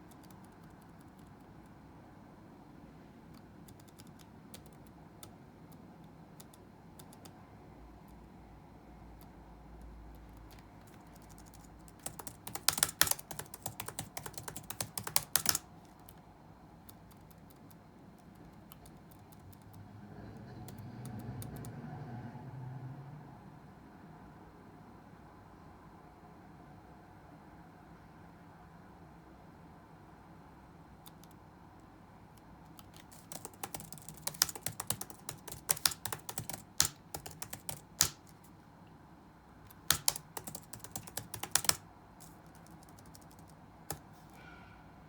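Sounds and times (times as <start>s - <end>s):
keyboard typing: 0.0s - 1.8s, 3.3s - 7.4s, 9.2s - 16.2s, 16.8s - 19.8s, 20.4s - 21.7s, 31.0s - 31.4s, 32.4s - 38.5s, 39.7s - 44.4s.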